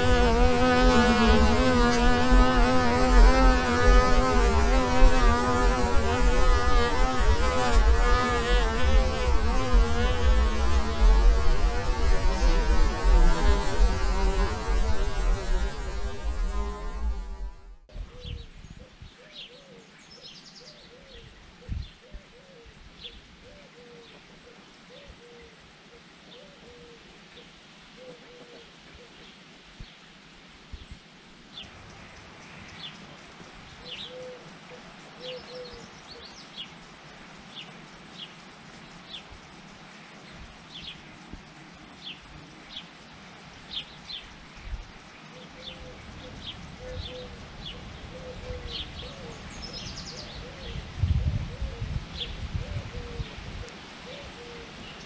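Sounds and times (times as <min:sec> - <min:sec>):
birds chirping: 0:43.7 - 0:53.4.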